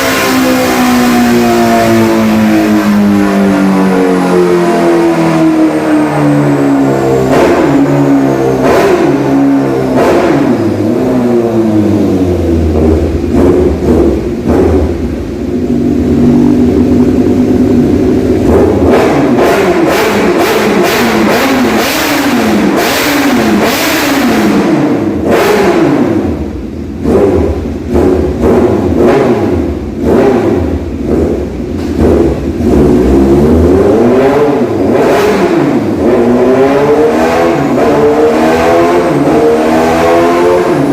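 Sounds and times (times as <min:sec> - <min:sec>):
motorcycle engine revving: 0:00.0 - 0:40.9
exhaust cracks: 0:12.0 - 0:36.3.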